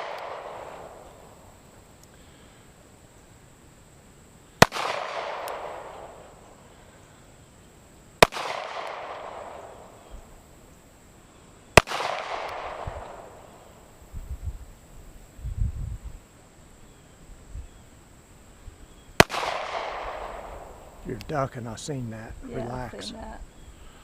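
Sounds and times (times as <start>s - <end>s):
handgun shots echoing: 4.6s - 6.2s, 8.2s - 10.0s, 11.8s - 13.4s, 19.2s - 20.7s.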